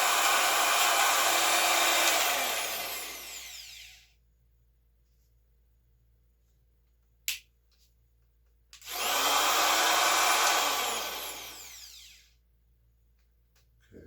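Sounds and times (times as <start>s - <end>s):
power tool running and coasting down: 0.0s - 4.0s, 8.8s - 12.3s.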